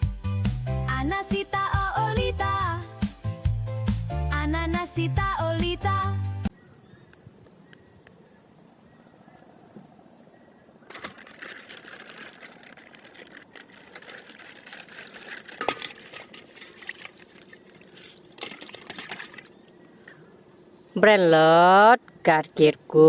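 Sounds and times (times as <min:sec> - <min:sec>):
plastic wrapping tearing: 0:10.9 - 0:16.3
plastic wrapping crinkling: 0:10.9 - 0:19.4.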